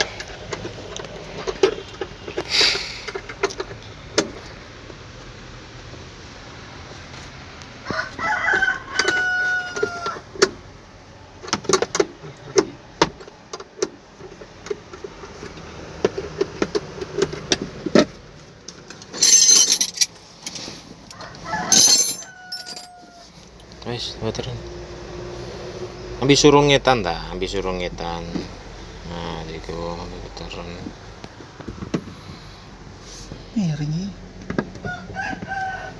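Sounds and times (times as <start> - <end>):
rooster crowing: 7.8 - 10.2, 21.1 - 23.4, 34.8 - 35.9.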